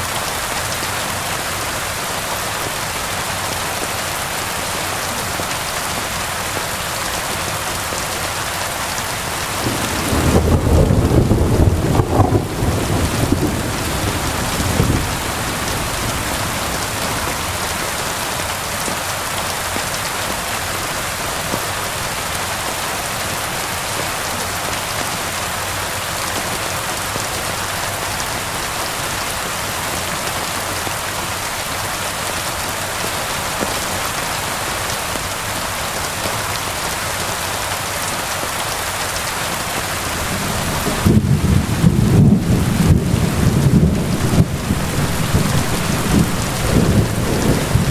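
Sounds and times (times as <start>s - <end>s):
steady rain: 0.0s - 47.9s
thunder rumbling: 9.2s - 17.7s, 40.0s - 47.9s.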